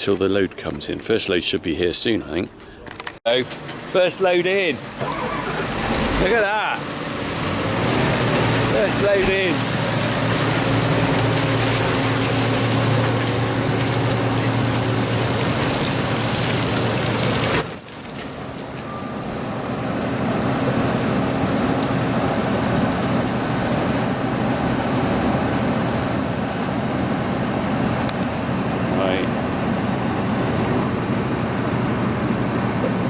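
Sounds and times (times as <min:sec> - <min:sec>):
heavy farm machinery engines: 0:02.3 - 0:33.0
high-pitched whistle or squeal: 0:17.6 - 0:19.7.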